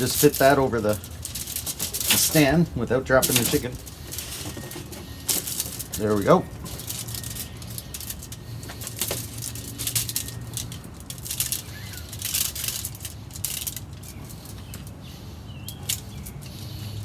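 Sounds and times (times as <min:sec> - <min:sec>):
rustling and crackling: 0:00.0 - 0:17.0.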